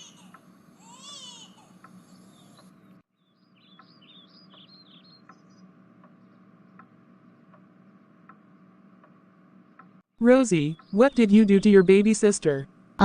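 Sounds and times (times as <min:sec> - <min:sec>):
faint bird chirps: 0:00.1 - 0:06.8
faint ticks: 0:01.8 - 0:02.8, 0:03.8 - 0:08.4.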